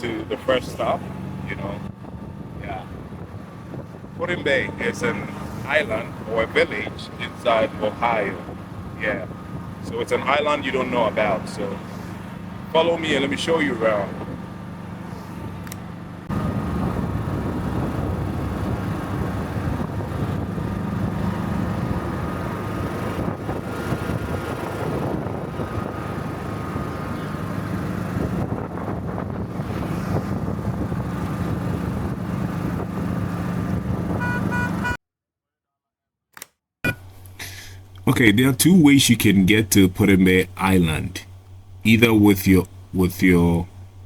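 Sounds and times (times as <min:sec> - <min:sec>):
golf cart motor hum: 0:00.0 - 0:35.0, 0:36.9 - 0:44.0
road and wind noise: 0:00.0 - 0:35.0, 0:36.9 - 0:44.0.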